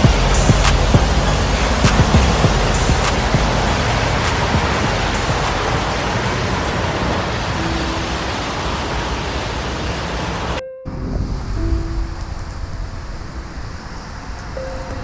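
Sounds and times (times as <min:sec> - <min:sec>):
high-pressure water jets spraying: 0:00.0 - 0:10.6.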